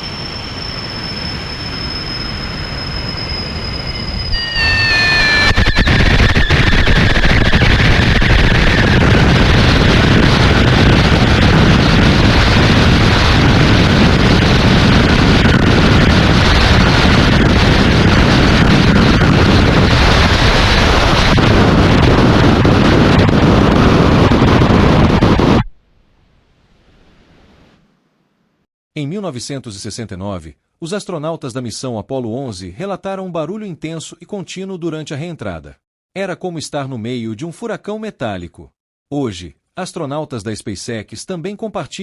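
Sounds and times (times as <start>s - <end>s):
high whine sliding down: 0.0s - 28.4s
dense rumbling roar: 4.2s - 27.7s.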